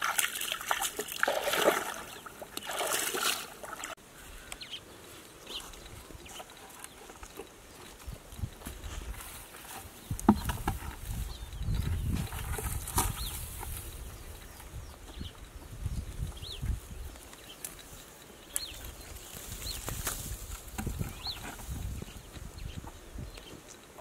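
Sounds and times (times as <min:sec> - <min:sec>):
footsteps on dry ground: 0:04.2 - 0:17.8
dry grass rustling: 0:04.2 - 0:23.9.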